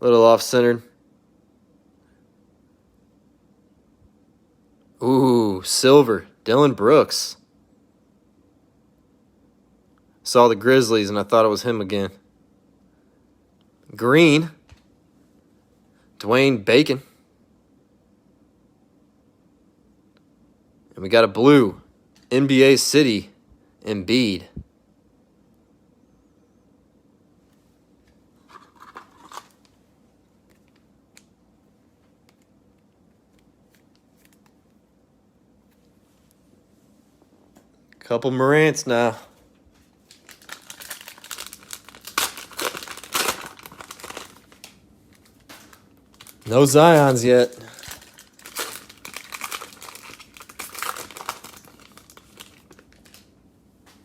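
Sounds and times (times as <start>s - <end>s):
cards rustling against wrapper: 28.4s - 29.8s, 40.0s - 53.3s
cellophane pack crinkling: 28.4s - 29.8s, 39.9s - 53.4s.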